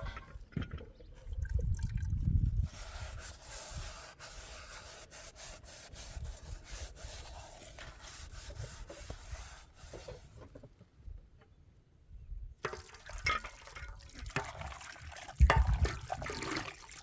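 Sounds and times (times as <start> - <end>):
scraping on a surface: 2.6 - 10.7.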